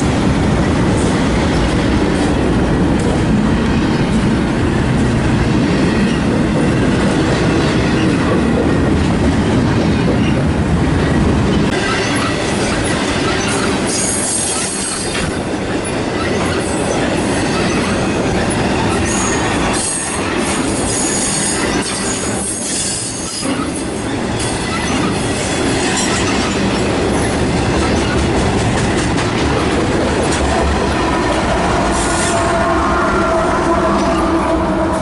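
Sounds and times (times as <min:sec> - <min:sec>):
train wheels rumbling: 0:00.0 - 0:35.0
wheel squeal: 0:11.8 - 0:15.3.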